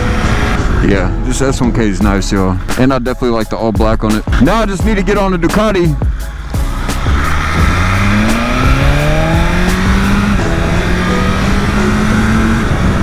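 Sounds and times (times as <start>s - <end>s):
motorcycle engine accelerating: 0.0s - 1.3s, 6.3s - 13.0s.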